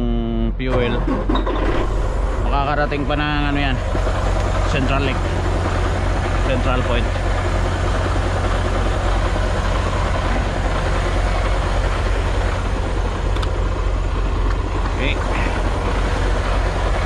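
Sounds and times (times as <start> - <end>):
truck diesel engine idling: 0.4 - 17.0.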